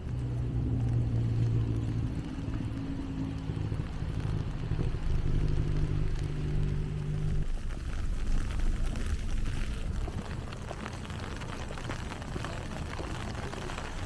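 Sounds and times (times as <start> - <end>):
low street rumble: 0.0 - 14.0
faint ticks and crunches: 3.6 - 14.0.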